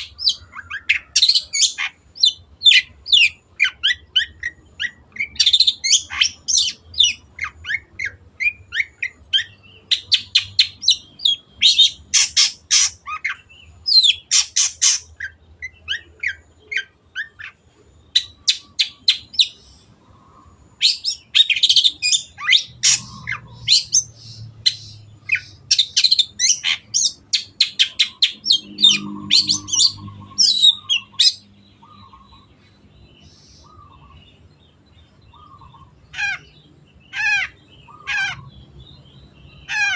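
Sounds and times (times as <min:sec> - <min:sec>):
bird singing sharp high notes: 0:20.9 - 0:32.6.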